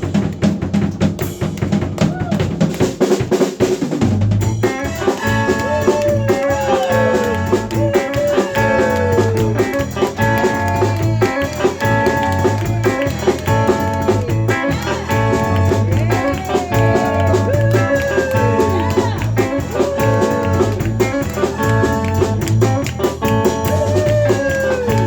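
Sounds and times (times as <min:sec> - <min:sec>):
band music: 0:00.0 - 0:25.0
drums: 0:00.0 - 0:25.0.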